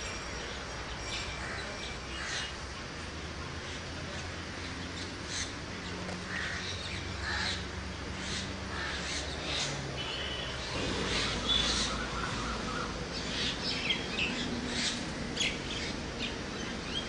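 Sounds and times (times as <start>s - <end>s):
steady background hiss: 0.0s - 17.0s
birds calling: 4.6s - 17.0s.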